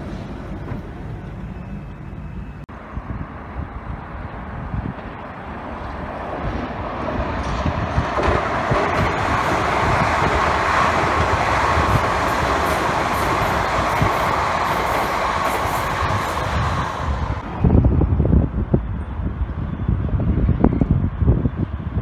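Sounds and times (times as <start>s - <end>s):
train wheels rushing on rail: 0.0s - 2.6s, 3.2s - 18.3s
rail joint clicks: 4.8s - 17.4s.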